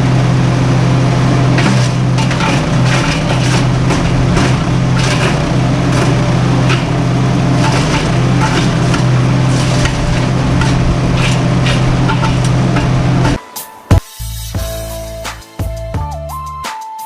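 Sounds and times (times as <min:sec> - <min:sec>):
wood chipper engine droning: 0:00.0 - 0:13.4.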